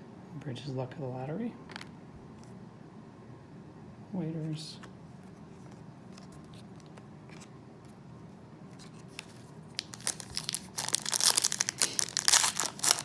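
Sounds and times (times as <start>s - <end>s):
plastic wrapper crinkling and tearing: 8.8s - 13.0s.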